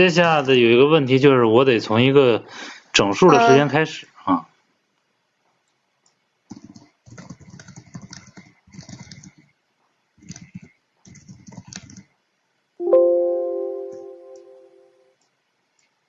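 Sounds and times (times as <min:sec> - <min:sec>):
typing on computer keyboard: 0:06.5 - 0:09.5, 0:10.2 - 0:12.1
ringing chime: 0:12.8 - 0:14.9.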